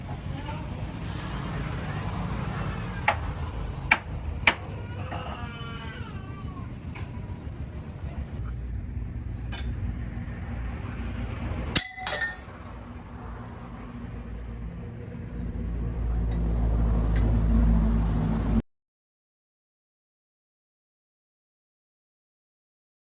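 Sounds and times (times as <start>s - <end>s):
sharp metal clink: 11.8s - 12.8s.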